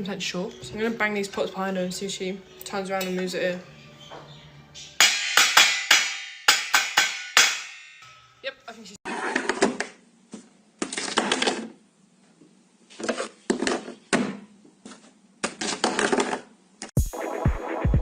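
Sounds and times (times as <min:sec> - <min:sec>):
music with thudding beat: 0:04.0 - 0:07.6, 0:17.0 - 0:18.0.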